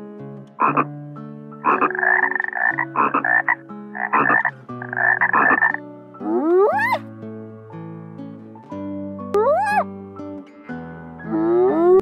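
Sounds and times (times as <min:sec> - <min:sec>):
frog croaking: 0:00.6 - 0:00.9, 0:01.6 - 0:07.0, 0:09.4 - 0:09.8.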